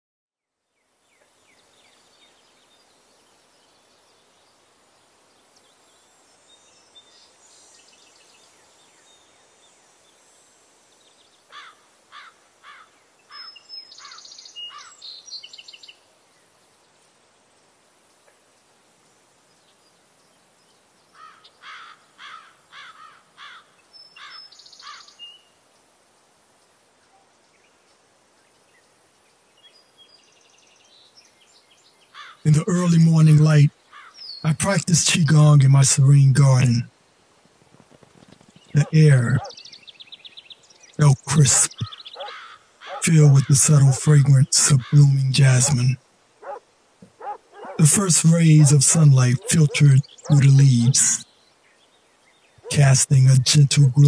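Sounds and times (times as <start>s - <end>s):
faint steady high hiss: 0.4s - 54.0s
bird singing: 10.9s - 16.5s, 19.5s - 25.6s, 27.0s - 36.0s, 38.4s - 54.0s.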